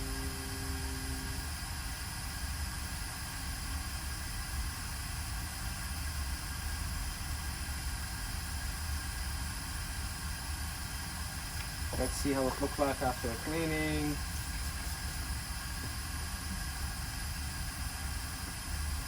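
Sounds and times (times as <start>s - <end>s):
high whining tones: 0.0s - 1.5s
low electrical hum: 0.0s - 19.0s
steady hiss: 0.0s - 19.0s.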